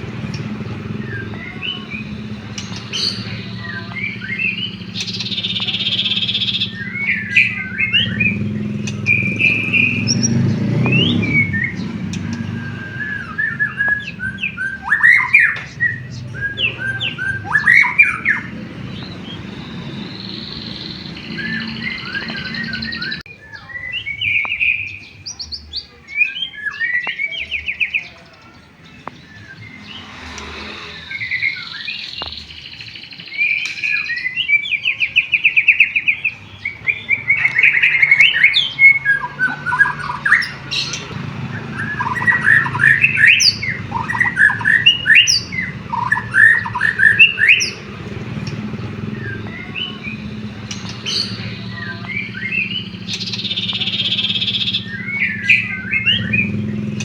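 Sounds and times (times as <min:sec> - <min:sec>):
songbird singing whistles and trills: 0:00.0 - 0:57.0.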